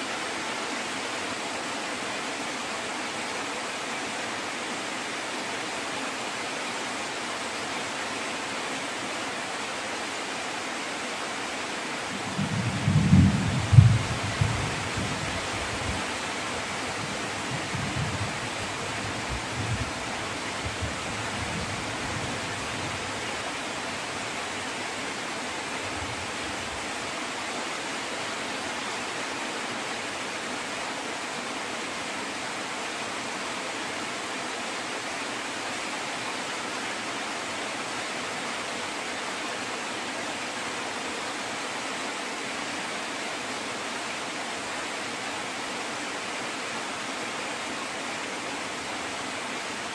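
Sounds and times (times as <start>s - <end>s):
steady rain hiss: 0.0s - 49.9s
low thunder rumbles: 12.2s - 15.2s.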